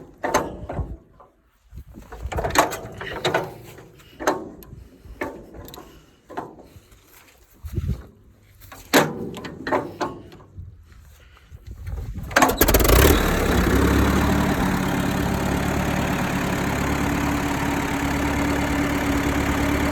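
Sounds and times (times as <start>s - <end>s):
tractor engine starting and idling: 12.2s - 19.9s
engine knocks: 12.4s - 19.9s.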